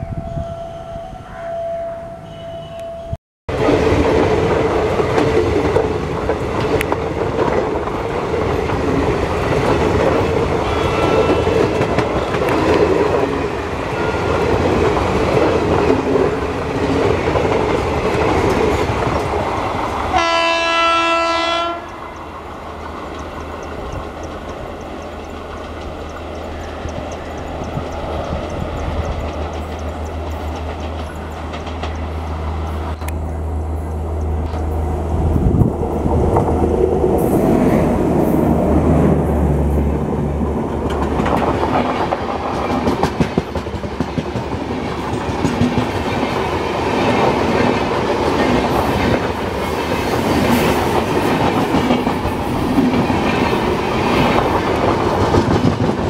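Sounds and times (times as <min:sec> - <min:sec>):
low steady locomotive hum: 0:04.4 - 0:56.0
locomotive horn blast: 0:10.5 - 0:12.7, 0:13.9 - 0:14.6, 0:20.1 - 0:22.0
train wheels clattering over rail joints: 0:22.2 - 0:33.3, 0:40.4 - 0:56.0.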